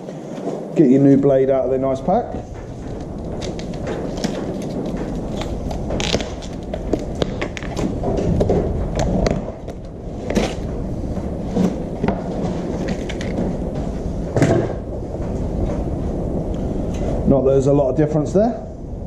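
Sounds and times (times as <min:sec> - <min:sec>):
low background rumble: 0:00.0 - 0:19.0
packaging clicks and rattles: 0:02.8 - 0:08.4.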